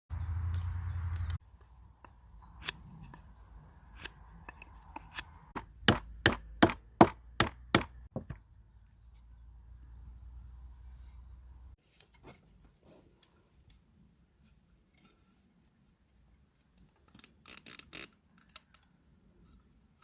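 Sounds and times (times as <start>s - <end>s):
tool striking wood: 4.0s - 8.4s.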